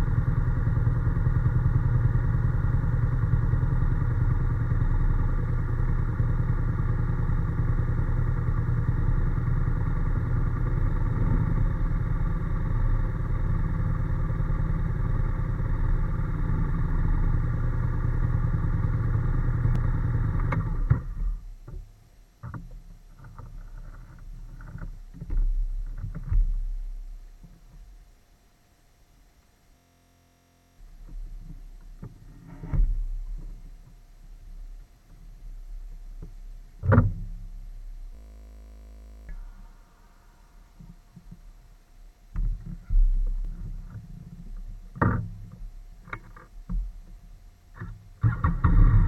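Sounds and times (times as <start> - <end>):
motorcycle engine running: 0.0 - 21.1, 30.8 - 47.1.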